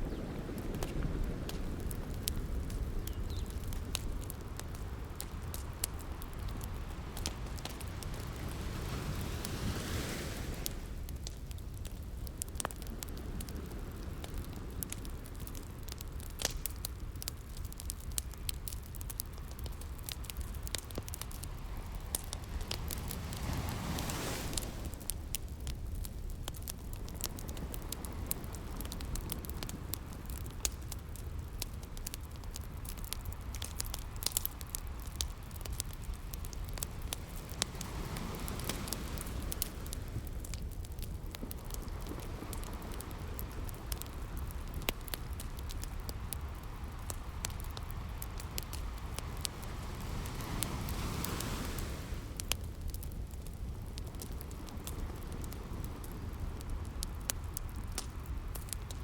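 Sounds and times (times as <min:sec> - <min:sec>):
sea waves: 0:00.0 - 0:11.2, 0:19.9 - 0:30.4, 0:33.6 - 0:44.8, 0:45.5 - 0:53.0
wood fire crackling and popping: 0:00.0 - 0:59.0.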